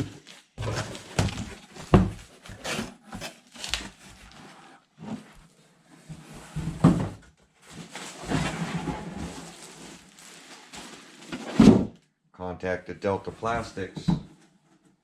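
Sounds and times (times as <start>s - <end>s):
rustling and scraping: 0.0s - 12.0s.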